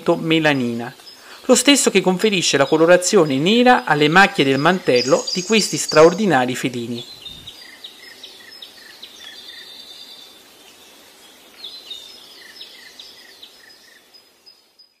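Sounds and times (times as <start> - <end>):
light hiss: 0.0 - 14.6
bird chirping: 0.0 - 15.0
thin steady high tone: 2.8 - 7.5.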